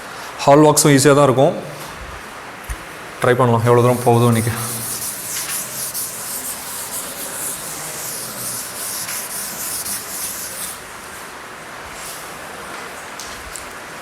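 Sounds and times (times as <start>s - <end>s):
uneven rubbing and scraping: 3.7s - 10.8s.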